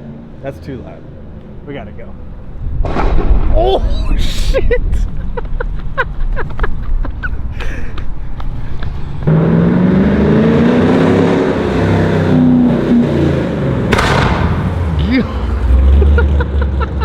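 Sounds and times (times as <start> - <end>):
loud car engine accelerating: 9.1 - 17.0.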